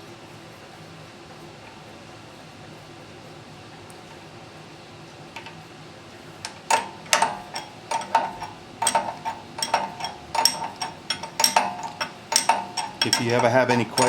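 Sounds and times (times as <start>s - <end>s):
metal tools clinking: 6.4s - 14.0s.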